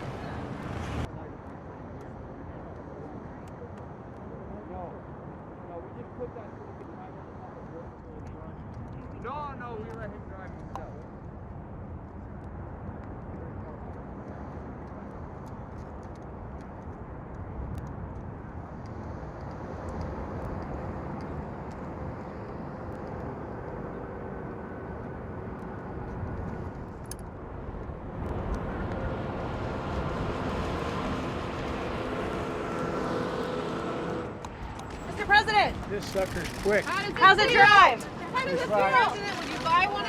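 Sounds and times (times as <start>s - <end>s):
truck tyres and air rumble: 8.0s - 40.0s.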